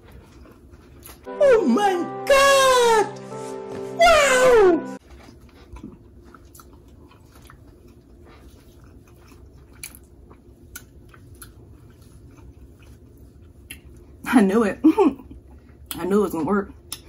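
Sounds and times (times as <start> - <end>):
person chewing food: 0.0 - 1.3, 5.0 - 14.2
wet mouth clicks and smacks: 9.7 - 10.1, 10.7 - 11.6.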